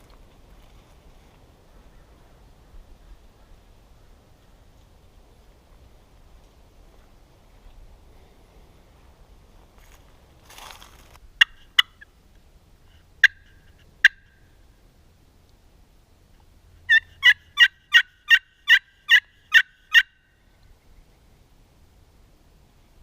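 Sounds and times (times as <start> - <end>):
turkey clucking: 13.2 - 14.4, 16.9 - 20.2
turkey yelps: 13.2 - 14.4, 16.9 - 20.2.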